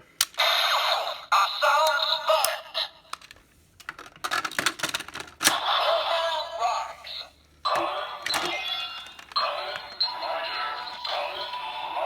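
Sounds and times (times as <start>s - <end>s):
plastic clicks: 1.8s - 5.6s.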